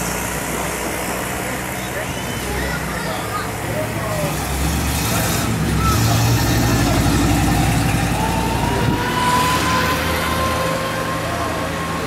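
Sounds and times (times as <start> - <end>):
car engine rumbling past: 3.5 - 12.0.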